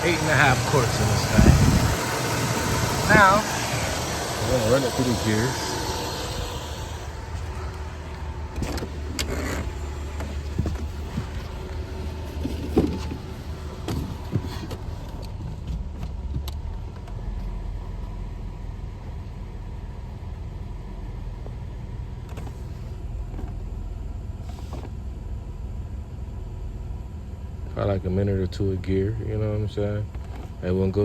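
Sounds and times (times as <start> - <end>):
transmission clicks and clunks: 0.0 - 17.9
car engine idling: 0.0 - 31.0.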